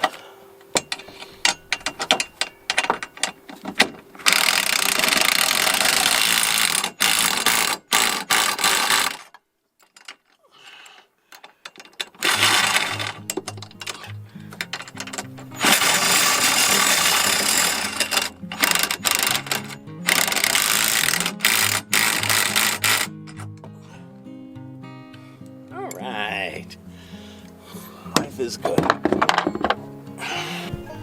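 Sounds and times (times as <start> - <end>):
ratchet wrench clicking: 4.2 - 9.3, 11.7 - 23.7.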